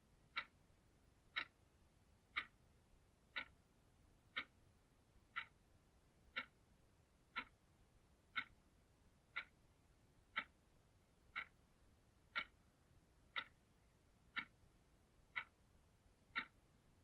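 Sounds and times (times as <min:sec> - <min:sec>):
clock ticking: 0:00.2 - 0:08.7, 0:09.3 - 0:17.0.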